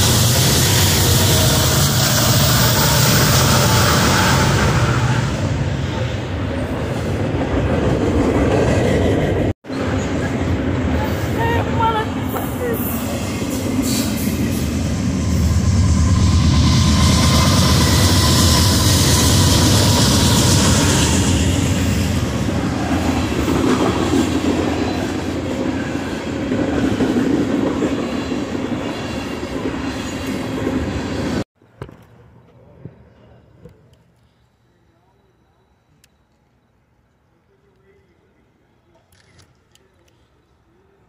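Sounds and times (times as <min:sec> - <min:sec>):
freight train rumbling past: 0:00.0 - 0:31.5.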